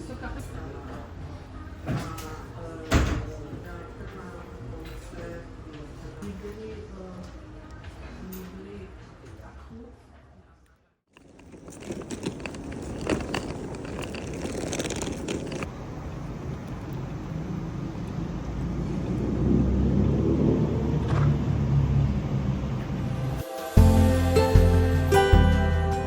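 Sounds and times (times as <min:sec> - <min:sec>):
clicks and rattles: 0:11.1 - 0:15.7
vehicle rumbling: 0:11.2 - 0:26.0.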